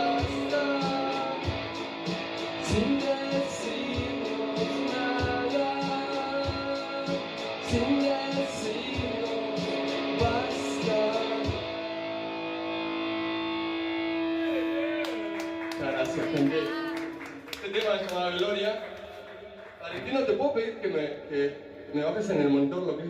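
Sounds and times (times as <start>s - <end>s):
live rock song with guitar: 0.0s - 17.2s.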